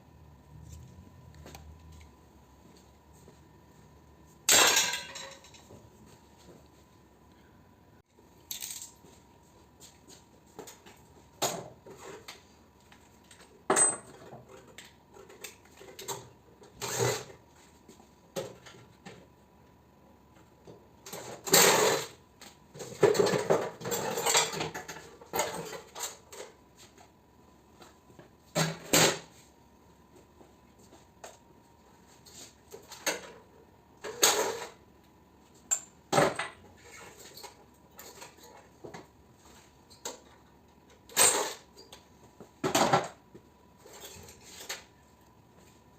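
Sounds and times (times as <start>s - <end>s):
faint steady hum: 0.0s - 45.9s
metal tools clanking and rattling: 4.5s - 5.7s, 22.9s - 26.5s.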